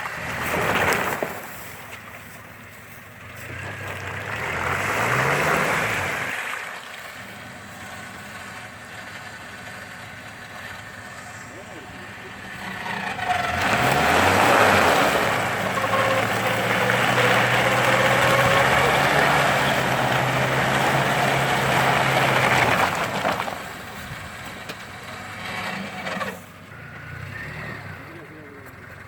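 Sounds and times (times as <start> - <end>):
off-road vehicle motor in mud: 0.0 - 29.0.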